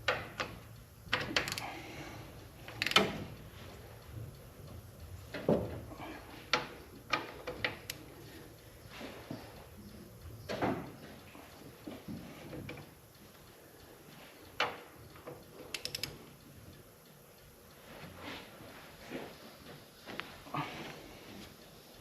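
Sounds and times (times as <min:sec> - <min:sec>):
ratchet ticking: 0:00.0 - 0:05.5, 0:06.4 - 0:17.8.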